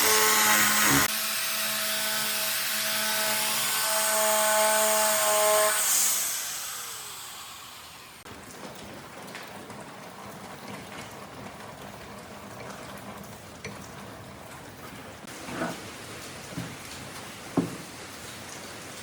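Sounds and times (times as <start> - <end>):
power tool winding down: 0.0 - 8.2.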